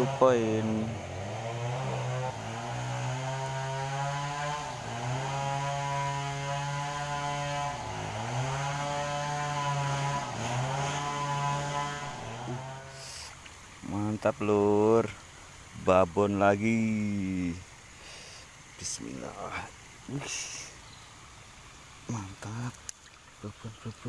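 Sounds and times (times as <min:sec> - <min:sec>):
small engine droning: 0:00.0 - 0:15.8.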